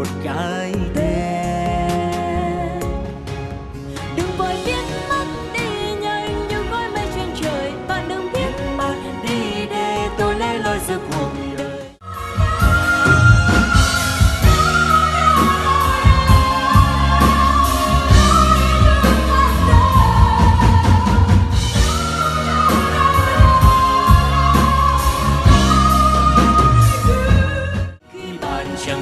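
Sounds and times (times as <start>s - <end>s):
pop band with drums: 0.0s - 29.0s.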